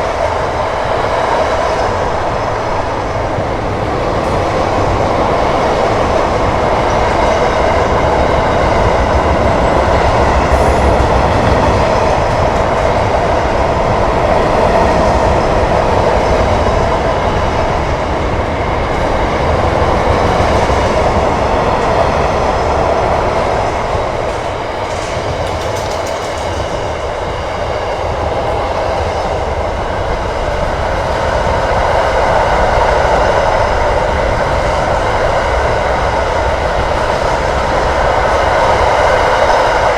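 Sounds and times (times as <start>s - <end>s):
freight train rolling past: 0.0s - 39.9s
wheels on rails: 18.9s - 31.6s.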